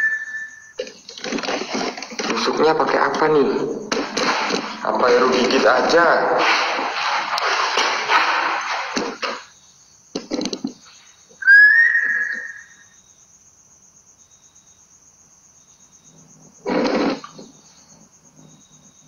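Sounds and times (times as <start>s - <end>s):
loud whistle-like note: 0.0s - 0.7s, 11.4s - 12.9s
crickets trilling: 0.0s - 19.0s.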